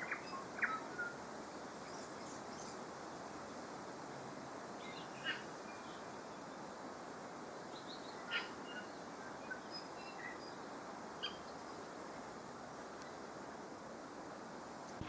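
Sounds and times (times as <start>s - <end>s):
bird calls and chirps: 0.0s - 1.2s, 4.8s - 6.4s, 7.7s - 10.6s, 11.2s - 11.9s
background hiss: 0.0s - 15.0s.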